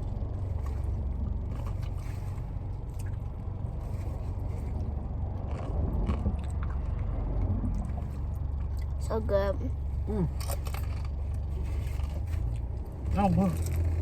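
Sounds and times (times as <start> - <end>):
car cabin low rumble: 0.0 - 14.0
light clicks and rustles: 10.4 - 14.0.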